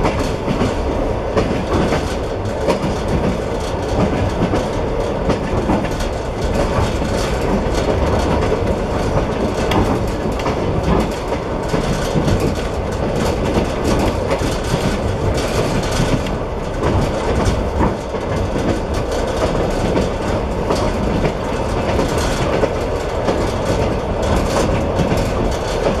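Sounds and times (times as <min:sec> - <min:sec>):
train wheels rumbling on rail: 0:00.0 - 0:26.0
wheels clicking over rail joints: 0:00.0 - 0:26.0.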